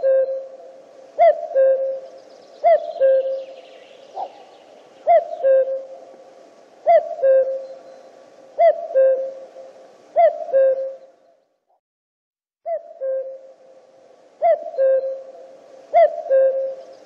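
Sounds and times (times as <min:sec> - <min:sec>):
cuckoo calling: 0:00.0 - 0:11.4, 0:12.7 - 0:13.8, 0:14.4 - 0:17.0.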